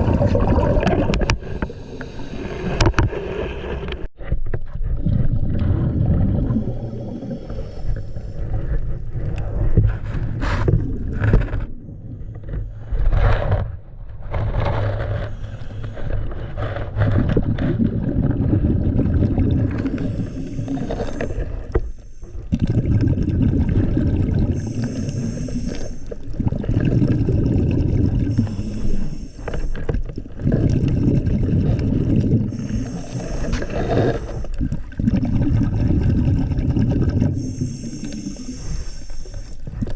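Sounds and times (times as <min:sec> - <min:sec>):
exhaled bubbles burbling: 0:00.0 - 0:04.1, 0:04.8 - 0:12.5, 0:16.9 - 0:39.9
regulator inhale hiss: 0:01.4 - 0:02.9, 0:06.5 - 0:08.8, 0:15.3 - 0:16.1, 0:19.7 - 0:22.5, 0:24.6 - 0:26.3, 0:28.2 - 0:30.0, 0:32.4 - 0:34.6, 0:37.3 - 0:39.8.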